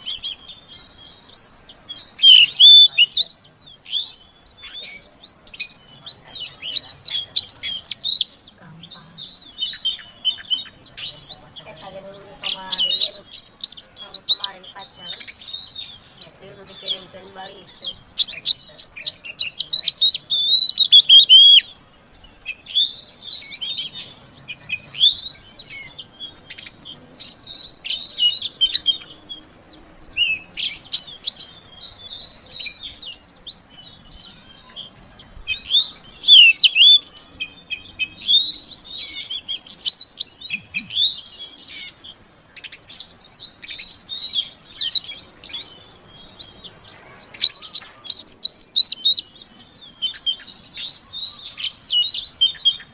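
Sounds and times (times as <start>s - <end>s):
bird chirping and whistling: 0.0s - 52.9s.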